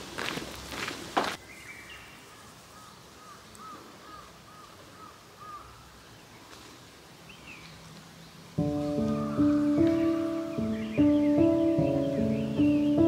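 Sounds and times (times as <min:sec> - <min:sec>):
footstep on gravel: 0:00.0 - 0:01.4
bird calling: 0:01.4 - 0:06.6, 0:08.6 - 0:13.0.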